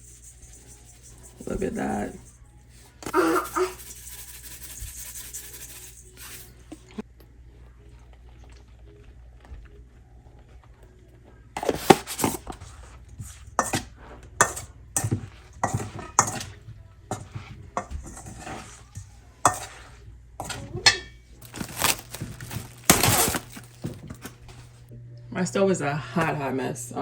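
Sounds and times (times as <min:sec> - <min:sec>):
dishes and utensils clattering: 0:13.3 - 0:24.6.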